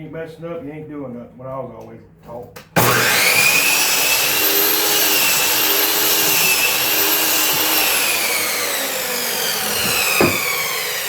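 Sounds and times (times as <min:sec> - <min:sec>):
power saw cutting wood: 0:02.8 - 0:11.0.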